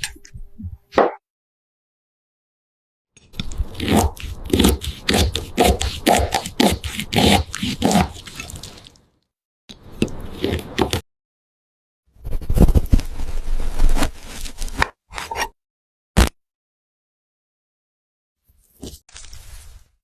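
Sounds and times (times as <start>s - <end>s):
knife cutting crisp fruit: 3.4s - 9.0s.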